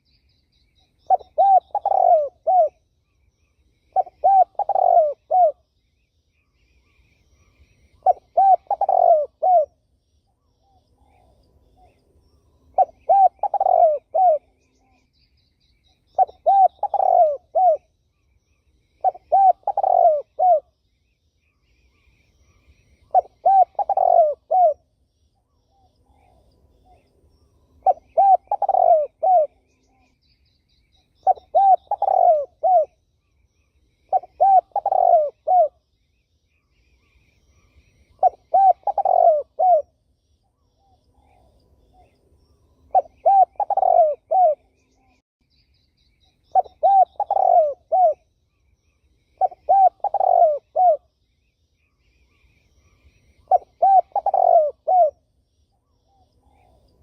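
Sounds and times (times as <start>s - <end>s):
faint high bird chirps: 0.0s - 57.0s
turtle dove cooing: 0.8s - 2.8s, 3.8s - 5.7s, 6.8s - 9.8s, 12.7s - 15.2s, 15.9s - 17.9s, 18.8s - 20.8s, 21.9s - 24.9s, 27.8s - 30.2s, 31.0s - 33.0s, 33.6s - 35.8s, 36.9s - 40.0s, 40.6s - 45.2s, 46.3s - 48.3s, 49.3s - 51.1s, 52.1s - 57.0s.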